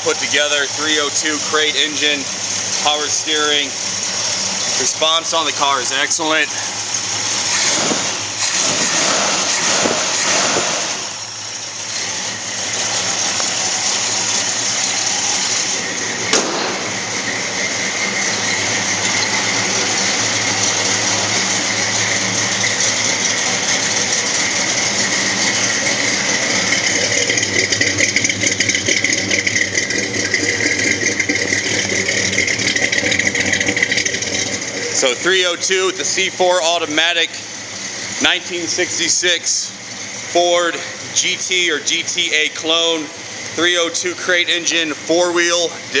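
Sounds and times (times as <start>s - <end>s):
car engine idling: 0.0s - 46.0s
sharp click: 16.3s - 16.9s.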